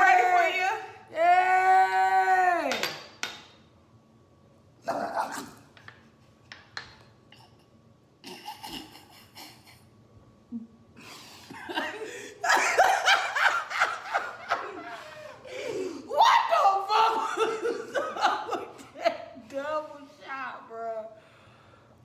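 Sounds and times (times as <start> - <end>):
people laughing: 11.2 - 19.3.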